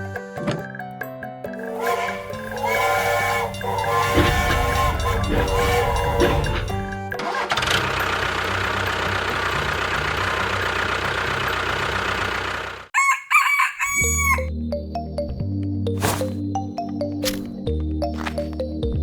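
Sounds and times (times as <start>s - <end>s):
call rising and falling in pitch: 13.0s - 14.5s.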